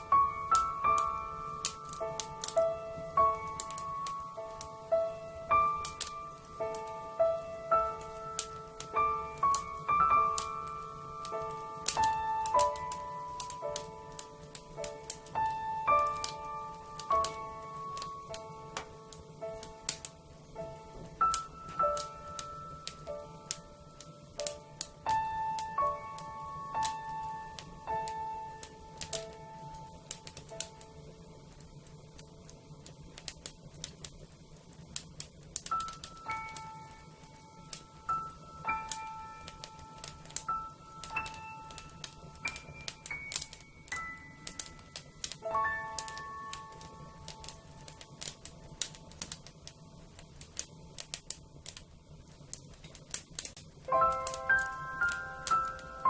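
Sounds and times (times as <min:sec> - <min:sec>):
soft background music: 0:00.0 - 0:33.8, 0:35.6 - 0:51.8, 0:53.8 - 0:56.0
wood fire crackling: 0:00.0 - 0:56.0
soft chime-like music: 0:21.2 - 0:24.8, 0:35.7 - 0:37.2, 0:38.0 - 0:47.5, 0:53.9 - 0:56.0.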